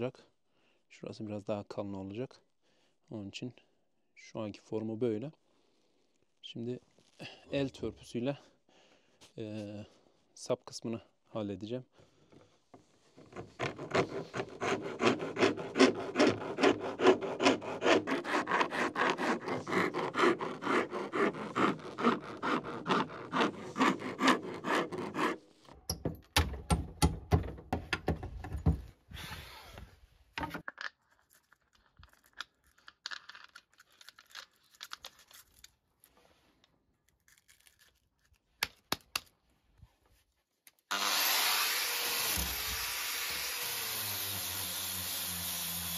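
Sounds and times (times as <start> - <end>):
hand rasp filing wood: 13.2 - 25.6, 41.0 - 45.9.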